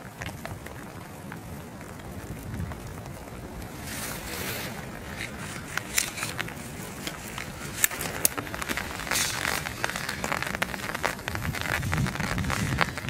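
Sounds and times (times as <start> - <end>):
rain falling: 0.0 - 13.0
raindrops tapping on umbrella: 0.0 - 13.0
wind rumbling on microphone: 0.0 - 13.0.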